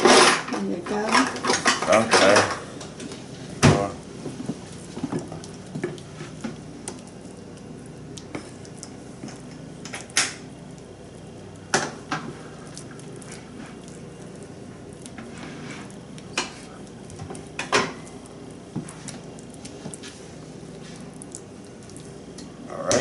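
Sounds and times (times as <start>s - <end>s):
utensil scraping baking dish: 15.2s - 16.8s.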